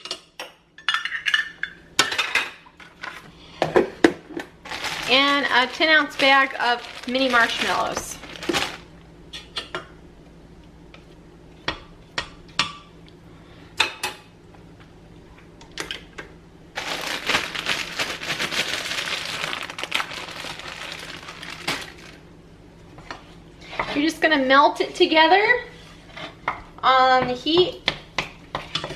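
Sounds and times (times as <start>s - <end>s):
plastic bag crinkling: 4.6s - 9.0s, 16.8s - 22.3s.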